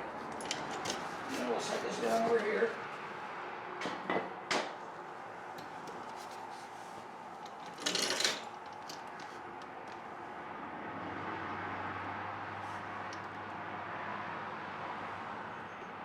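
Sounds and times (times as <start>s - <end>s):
metal parts clattering: 7.6s - 9.0s.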